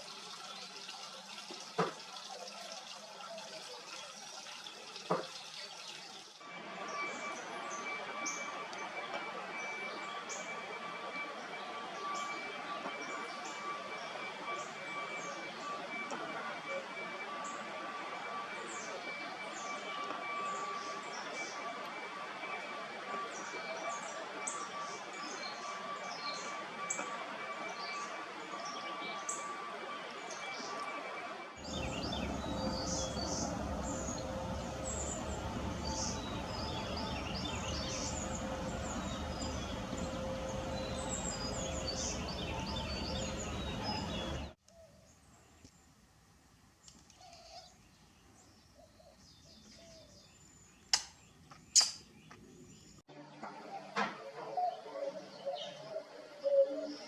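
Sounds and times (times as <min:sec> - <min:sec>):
outdoor background noise: 0:00.0 - 0:57.0
low rumble: 0:31.6 - 0:44.6
birds chirping: 0:31.6 - 0:45.9.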